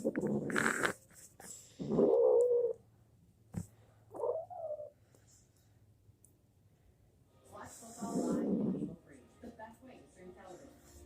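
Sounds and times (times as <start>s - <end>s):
cat complaining calls: 1.8s - 2.8s, 4.1s - 4.9s.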